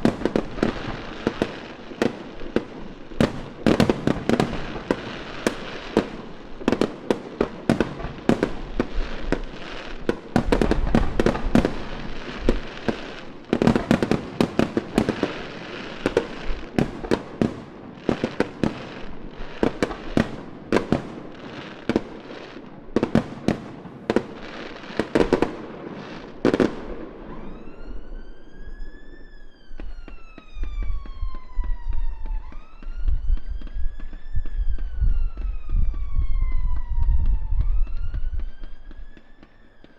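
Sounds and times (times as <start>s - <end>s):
firework bangs and crackles: 0.0s - 39.9s
emergency vehicle siren wailing: 26.4s - 39.9s.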